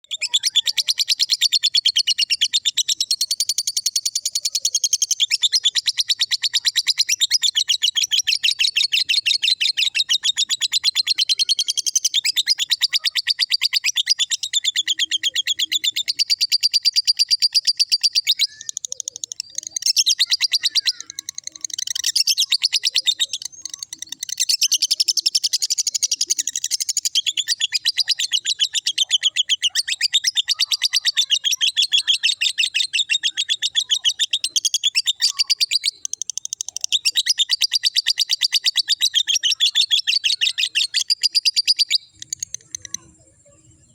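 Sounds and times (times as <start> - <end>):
lovebird shrill chattering song: 0.0 - 43.9.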